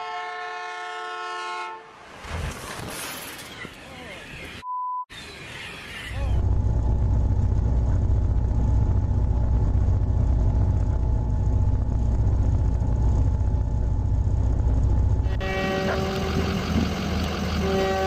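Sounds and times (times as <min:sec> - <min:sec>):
train engine rumbling: 0:05.9 - 0:18.0.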